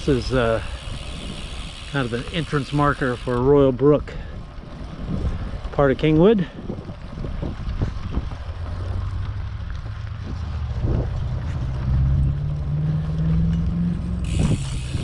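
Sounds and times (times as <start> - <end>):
wind buffeting microphone: 0.0 - 13.0, 14.2 - 15.0
low road rumble: 0.0 - 15.0
low hum rising in pitch: 9.0 - 15.0.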